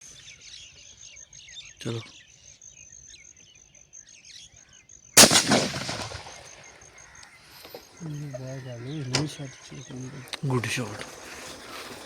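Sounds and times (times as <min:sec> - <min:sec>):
birds chirping faintly: 0:00.0 - 0:12.0
shotgun shot echoing: 0:05.2 - 0:06.8.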